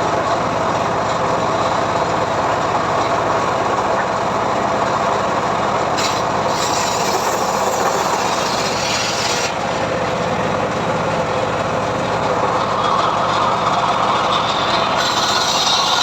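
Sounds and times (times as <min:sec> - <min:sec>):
engine hum: 0:00.0 - 0:16.0
saw blade ripping through log: 0:06.0 - 0:09.8, 0:14.4 - 0:16.0.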